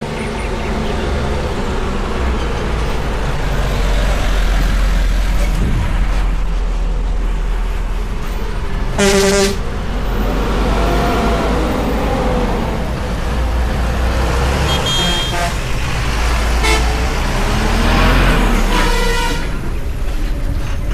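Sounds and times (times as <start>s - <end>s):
heavy vehicle engine rumbling: 0.0s - 20.9s
vehicle horn blast: 9.0s - 9.7s, 14.6s - 15.7s, 16.6s - 17.0s, 18.6s - 19.6s.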